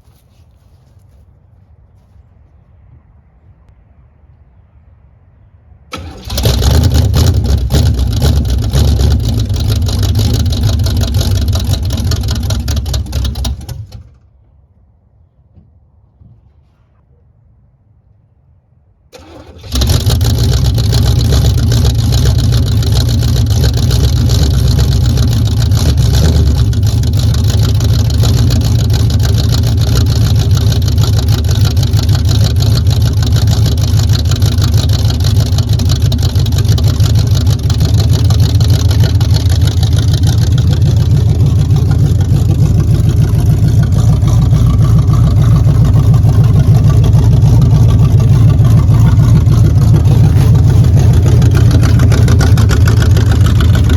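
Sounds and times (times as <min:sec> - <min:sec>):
car engine deep exhaust rumble: 0:05.9 - 0:14.0, 0:19.7 - 0:53.9.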